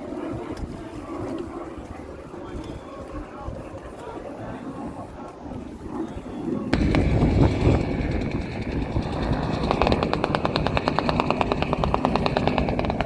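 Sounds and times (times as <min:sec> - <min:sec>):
plane engine low rumble: 0:06.6 - 0:13.0
machine guns firing: 0:06.8 - 0:13.0.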